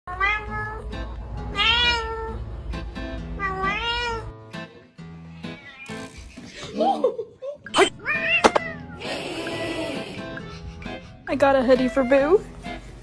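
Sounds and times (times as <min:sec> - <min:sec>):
cat meowing: 0:00.1 - 0:00.9, 0:01.5 - 0:02.4, 0:03.4 - 0:04.4, 0:08.0 - 0:10.2
background music: 0:00.1 - 0:13.0.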